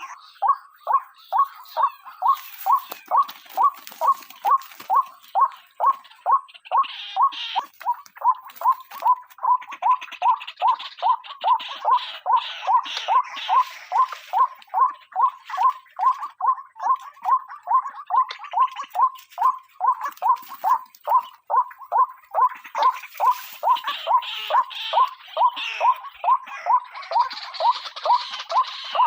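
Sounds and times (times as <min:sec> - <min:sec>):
harsh noisy bird calls: 0:00.0 - 0:29.0
waterhen calling: 0:00.0 - 0:29.0.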